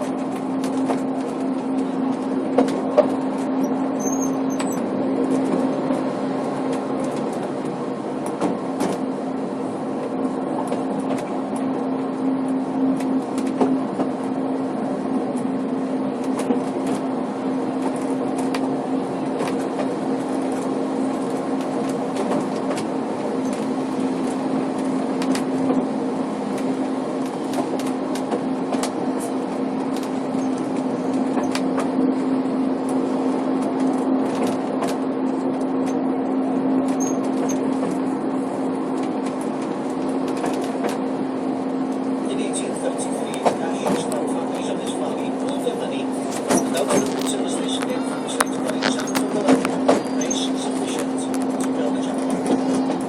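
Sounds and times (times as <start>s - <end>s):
clicks and knocks from track: 0.0s - 9.1s, 10.0s - 11.7s, 12.9s - 14.2s, 16.2s - 17.1s, 19.3s - 23.7s, 26.5s - 32.0s, 33.6s - 36.0s, 36.9s - 38.0s, 39.0s - 41.0s, 42.6s - 53.0s
train engine drone: 0.0s - 53.0s.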